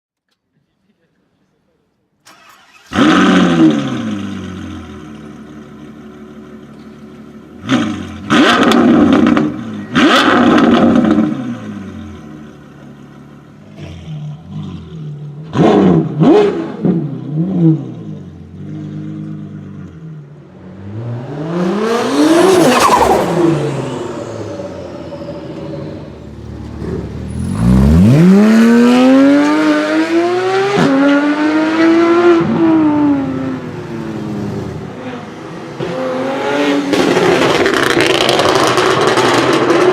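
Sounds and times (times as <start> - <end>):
car engines revving: 2.3 - 39.9
car passing: 20.5 - 39.9
car accelerating through gears: 20.7 - 39.9.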